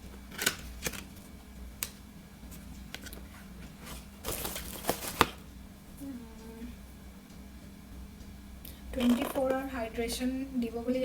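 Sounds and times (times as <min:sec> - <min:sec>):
packaging rustle: 0:03.0 - 0:05.4.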